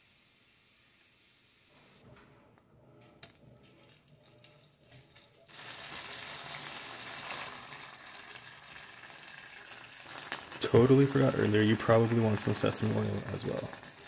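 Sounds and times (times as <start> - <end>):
food sizzling in oil: 4.4 - 14.0.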